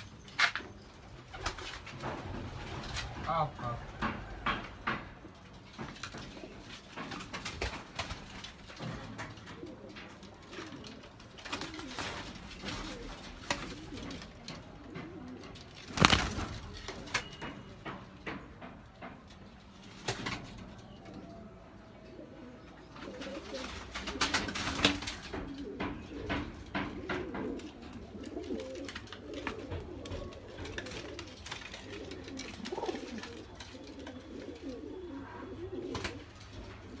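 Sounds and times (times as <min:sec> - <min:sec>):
sharp knocks and clicks: 0:03.8 - 0:09.7, 0:14.0 - 0:20.6, 0:24.7 - 0:28.0
pigeons cooing: 0:06.0 - 0:17.8, 0:20.2 - 0:37.0.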